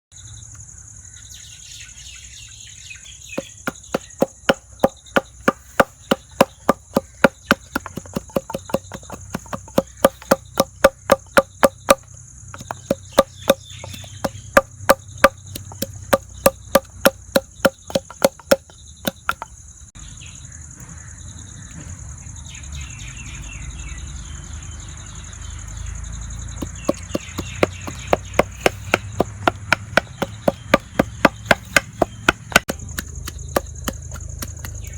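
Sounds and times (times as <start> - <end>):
knife chopping on cutting board: 3.4 - 12.0, 12.6 - 19.4, 26.6 - 34.9.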